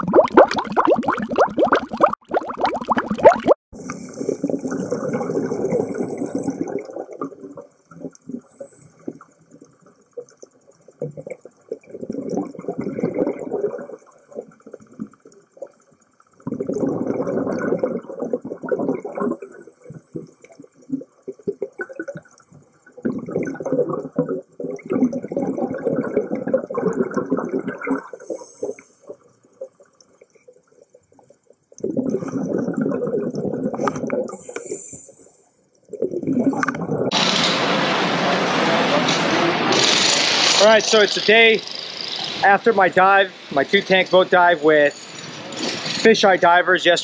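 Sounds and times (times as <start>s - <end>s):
underwater exhaled bubbles rumbling: 0.0s - 8.5s, 9.7s - 28.3s, 31.1s - 34.5s, 35.9s - 37.3s.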